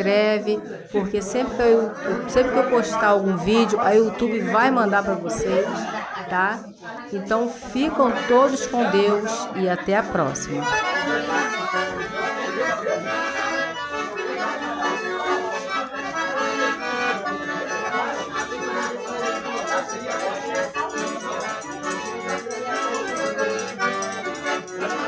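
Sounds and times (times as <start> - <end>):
accordion traditional music: 0.0 - 25.0
percussion rhythm: 18.0 - 25.0.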